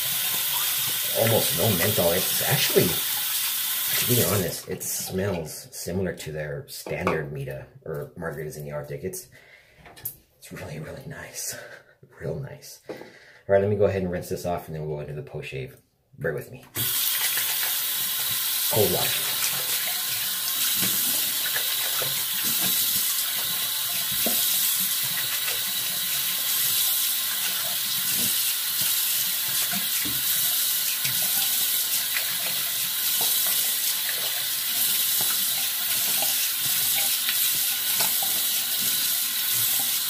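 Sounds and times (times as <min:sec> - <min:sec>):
tap water running into sink: 0:00.0 - 0:04.5, 0:16.8 - 0:40.0.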